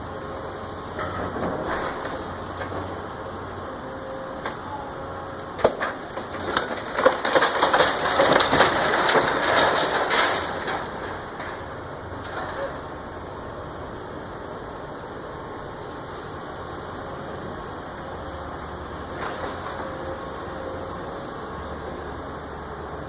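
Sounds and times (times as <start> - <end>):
wooden framing splintering: 5.6 - 11.6.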